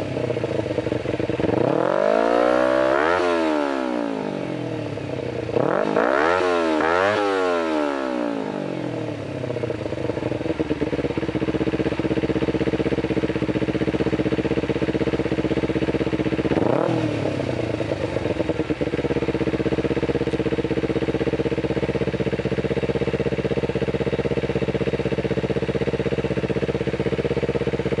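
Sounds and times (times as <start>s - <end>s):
motorcycle engine idling: 0.0s - 28.0s
motorcycle throttle blips: 8.8s - 28.0s.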